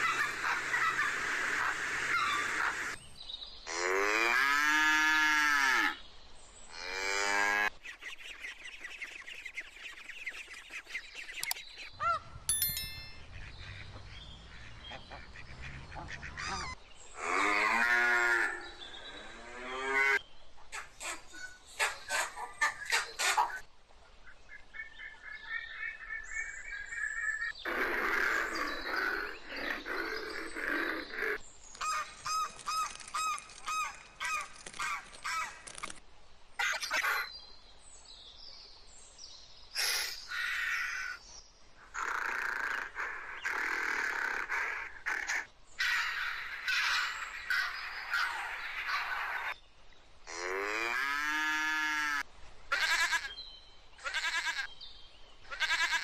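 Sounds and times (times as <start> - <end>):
animal calls: 0.0 - 3.0, 41.9 - 49.6
ducks quacking: 13.3 - 16.8.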